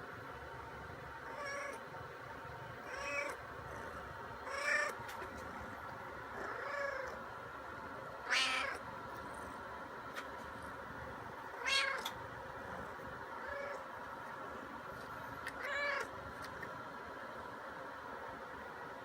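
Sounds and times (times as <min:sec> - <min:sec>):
cat meowing: 0:02.9 - 0:03.4, 0:04.4 - 0:05.0, 0:08.2 - 0:08.8, 0:11.5 - 0:12.1, 0:13.4 - 0:13.8, 0:15.5 - 0:16.1.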